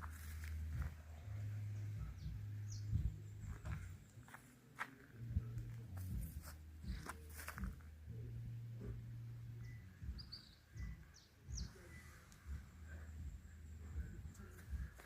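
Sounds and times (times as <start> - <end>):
bird chirps: 9.6 - 12.5.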